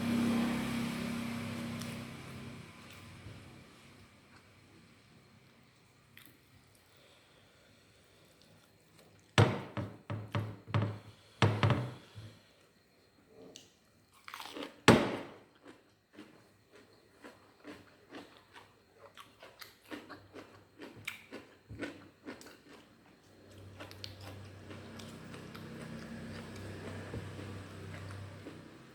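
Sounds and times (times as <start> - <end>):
chewing with wet clicks: 15.6 - 28.7.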